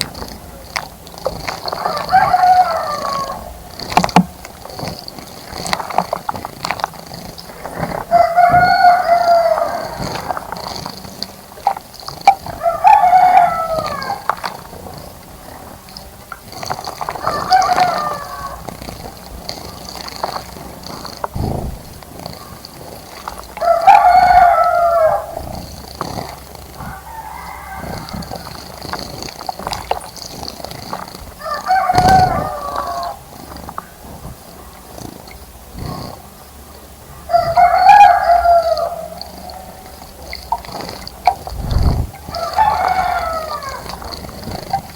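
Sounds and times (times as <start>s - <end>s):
rooster crowing: 1.8s - 3.5s, 8.1s - 10.4s, 12.5s - 14.3s, 17.2s - 18.7s, 23.6s - 25.4s, 26.8s - 28.7s, 31.4s - 33.3s, 37.3s - 39.9s, 41.7s - 44.1s
birds splashing water: 37.0s - 44.9s.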